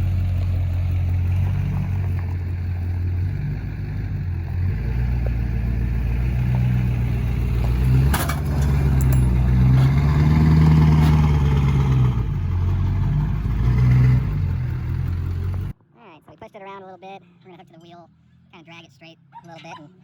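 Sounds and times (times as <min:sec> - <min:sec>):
diesel truck engine revving: 0:00.0 - 0:15.8.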